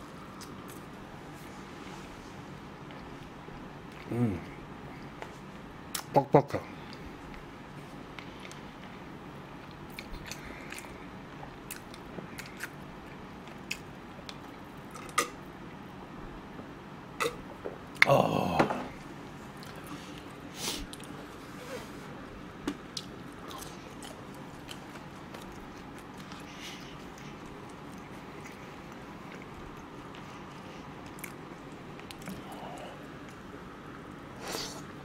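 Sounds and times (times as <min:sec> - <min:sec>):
person chewing: 0:08.2 - 0:15.3, 0:19.5 - 0:21.2, 0:22.7 - 0:33.5.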